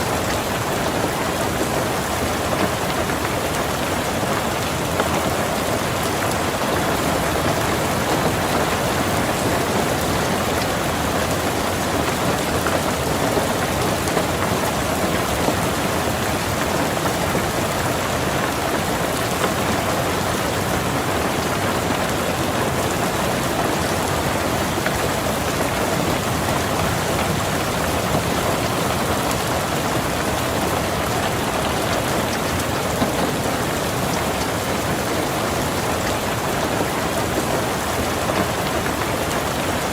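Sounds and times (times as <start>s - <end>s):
rain on a car roof: 0.0s - 39.9s.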